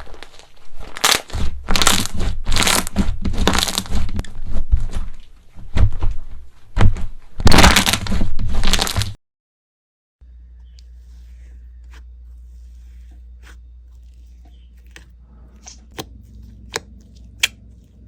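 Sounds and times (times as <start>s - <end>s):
crunchy slime crackling: 0.0s - 5.2s, 7.4s - 9.2s.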